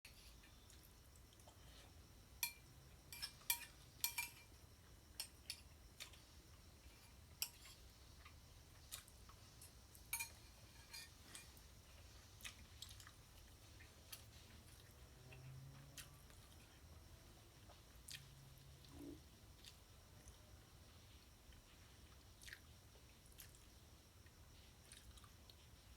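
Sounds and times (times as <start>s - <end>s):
mouth chewing food: 12.3s - 16.7s, 17.6s - 20.4s, 21.5s - 23.8s, 24.8s - 25.8s.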